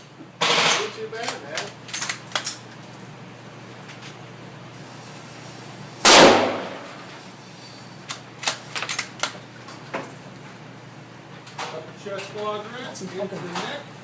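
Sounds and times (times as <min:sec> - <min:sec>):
rifle shot with echo: 0:06.0 - 0:07.0.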